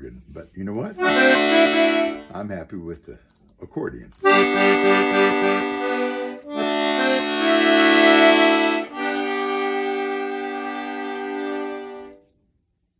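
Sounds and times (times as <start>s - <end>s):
accordion chords: 0.9s - 2.6s, 4.2s - 12.2s.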